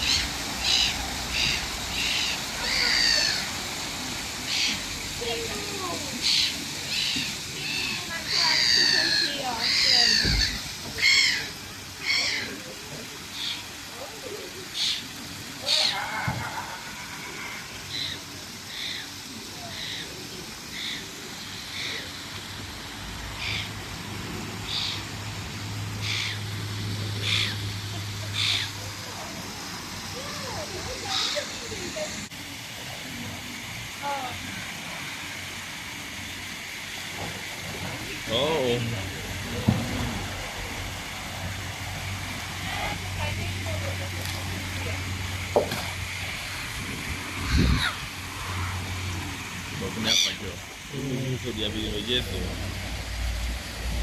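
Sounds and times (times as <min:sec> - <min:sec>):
longer layered bird call: 0:00.0 - 0:12.6, 0:14.6 - 0:22.2, 0:23.3 - 0:23.8, 0:24.6 - 0:25.1, 0:26.0 - 0:28.9, 0:30.2 - 0:31.6, 0:49.9 - 0:50.6
steady hiss: 0:00.0 - 0:54.0.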